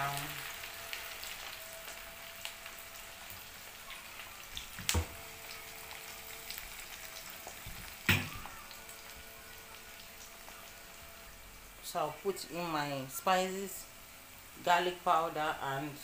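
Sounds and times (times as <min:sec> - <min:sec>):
onions sizzling in frying pan: 0:00.0 - 0:16.0.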